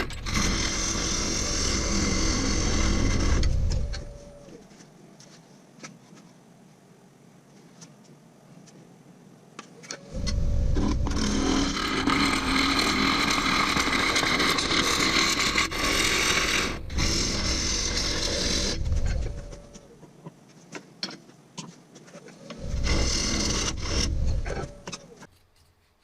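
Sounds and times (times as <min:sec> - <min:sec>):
wood lathe rumbling: 0:00.0 - 0:04.2, 0:10.2 - 0:19.8, 0:22.6 - 0:25.3
tool scraping turning wood: 0:00.0 - 0:04.6, 0:10.0 - 0:19.9, 0:20.5 - 0:25.3.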